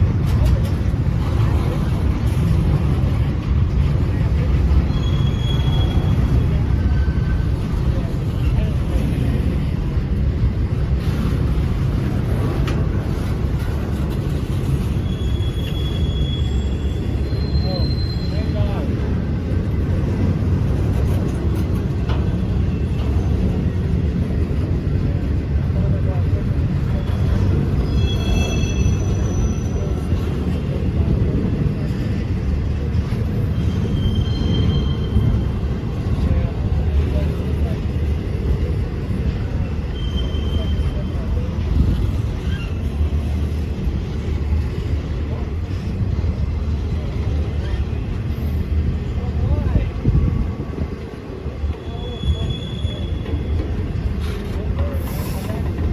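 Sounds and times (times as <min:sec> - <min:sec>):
train wheels rumbling on rails: 0:00.0 - 0:55.9
high wheel squeal: 0:04.8 - 0:07.4, 0:14.4 - 0:18.9, 0:26.9 - 0:30.3, 0:33.2 - 0:35.8, 0:39.5 - 0:41.6, 0:42.2 - 0:43.6, 0:51.7 - 0:55.7.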